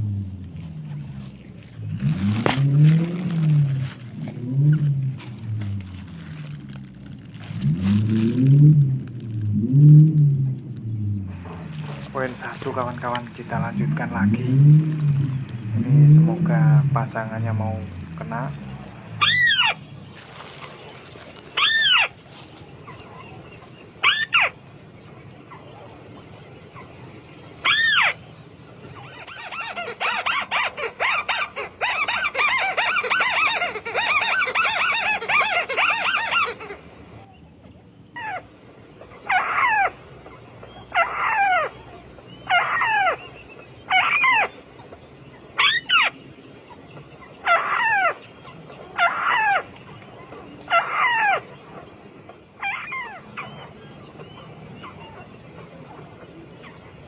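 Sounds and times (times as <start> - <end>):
rapid bird chattering: 10.6 - 36.9.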